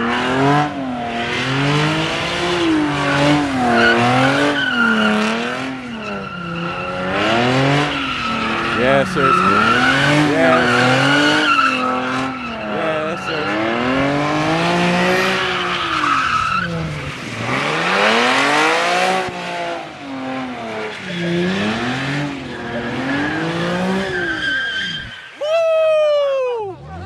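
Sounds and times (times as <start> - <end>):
car engine revving: 0.0 - 25.3
tyres squealing: 2.8 - 17.3, 20.8 - 27.0.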